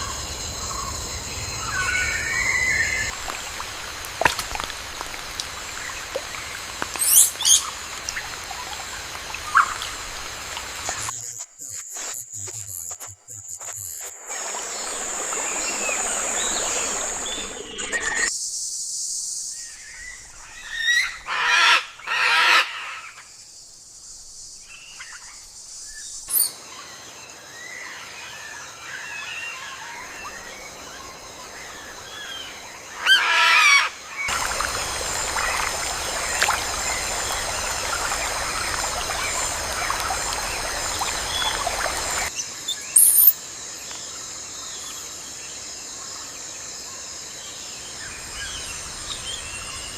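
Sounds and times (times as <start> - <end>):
bird chirps: 41.0 - 43.4.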